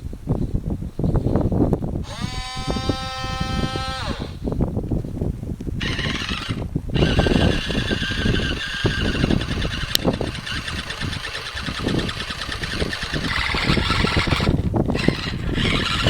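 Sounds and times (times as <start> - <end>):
toy electric motor whining: 2.0 - 4.4, 5.8 - 16.0.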